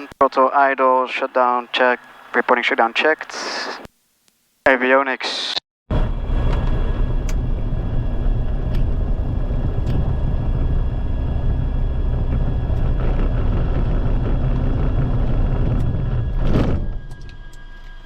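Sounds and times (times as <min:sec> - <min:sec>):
aircraft engine idling: 0:05.9 - 0:18.0.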